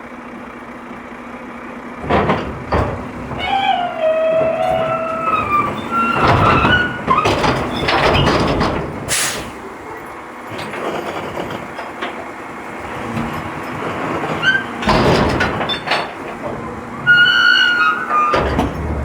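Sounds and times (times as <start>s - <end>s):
garbage truck rattling: 0.1s - 19.0s
short sharp hiss: 9.1s - 9.6s.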